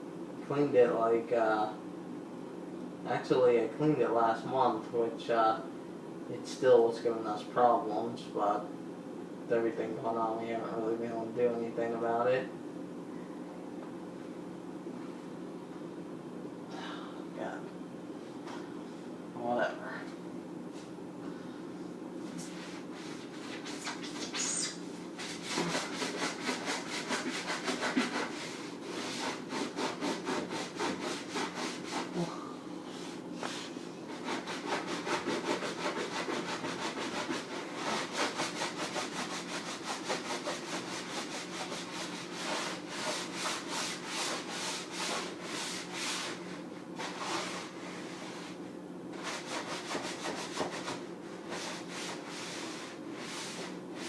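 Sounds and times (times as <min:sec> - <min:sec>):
sponge scrubbing: 0:22.4 - 0:32.2, 0:33.0 - 0:54.0.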